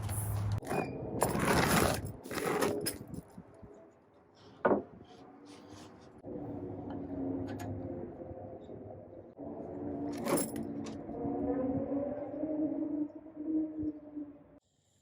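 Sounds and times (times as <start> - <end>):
rustling hardware: 0.0 - 3.3, 10.1 - 11.0.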